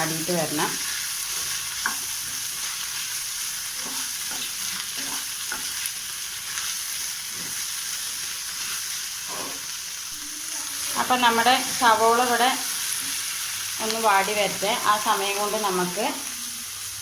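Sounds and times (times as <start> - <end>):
onions sizzling in butter: 0.0 - 17.0
spoon stirring in pan: 0.7 - 9.8.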